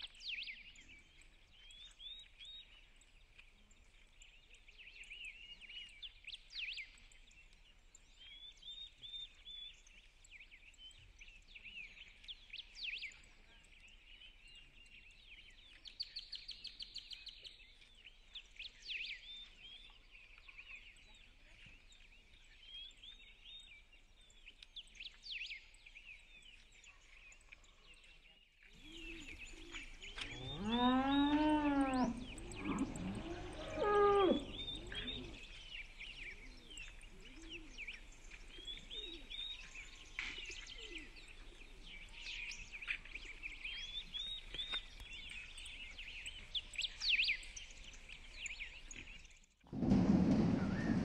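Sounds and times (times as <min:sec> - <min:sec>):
birds chirping and singing: 0:00.0 - 0:49.4, 0:50.2 - 0:51.0
long pitched bird call: 0:30.2 - 0:36.4
low rumbling noise: 0:31.9 - 0:35.5, 0:49.7 - 0:51.0.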